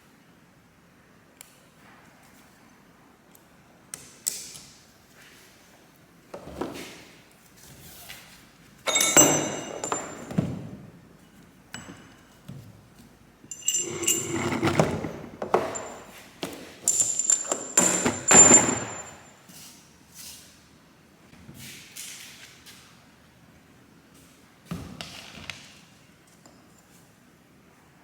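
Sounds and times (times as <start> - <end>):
metal tools clanking: 8.9 - 10.5, 13.5 - 19.3.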